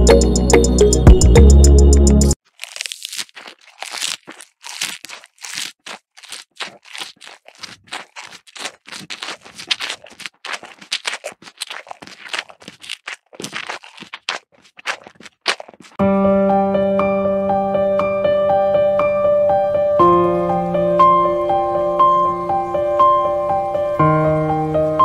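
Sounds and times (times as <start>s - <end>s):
material crackling and rustling: 2.4s - 16.0s.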